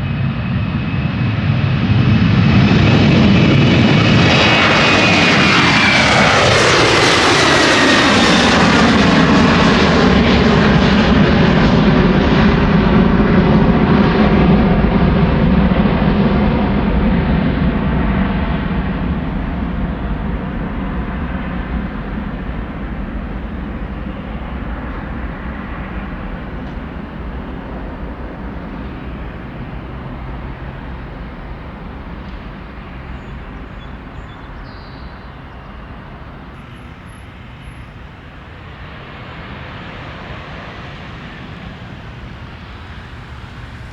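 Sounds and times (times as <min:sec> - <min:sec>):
jet airliner passing by: 0:00.0 - 0:43.9.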